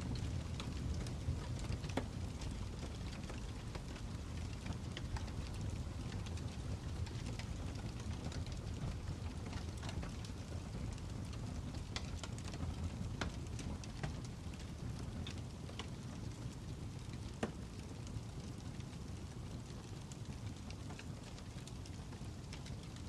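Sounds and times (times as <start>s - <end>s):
fire crackling and popping: 0.0s - 23.0s.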